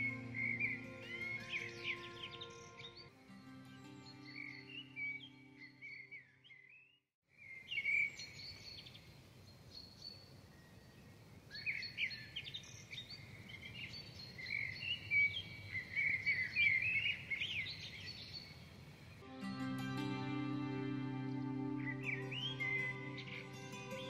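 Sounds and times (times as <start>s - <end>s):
birds chirping and singing: 0.0s - 6.9s, 11.6s - 18.6s, 21.3s - 24.0s
outdoor ambient hiss: 7.4s - 24.0s.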